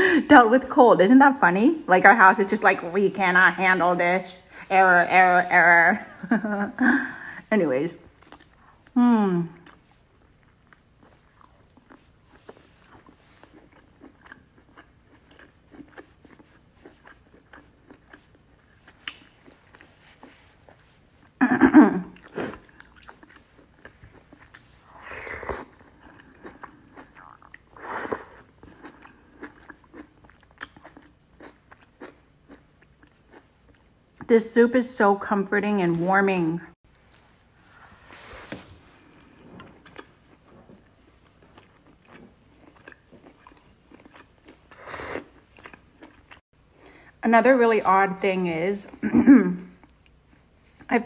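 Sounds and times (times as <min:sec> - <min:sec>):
person chewing food: 0:08.0 - 0:21.4, 0:22.0 - 0:34.3, 0:38.4 - 0:47.1, 0:49.7 - 0:50.9.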